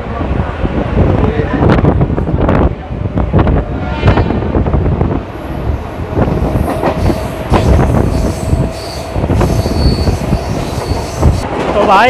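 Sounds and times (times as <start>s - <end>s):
heavy train rumble: 0.0s - 12.0s
steady high squeal: 7.0s - 11.4s.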